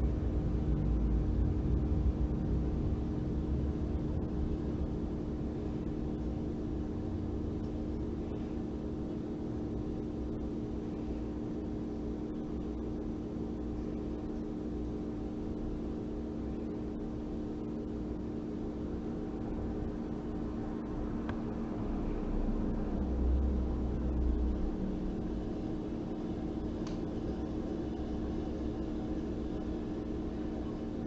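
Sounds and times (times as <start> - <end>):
low hum: 0.0 - 14.6.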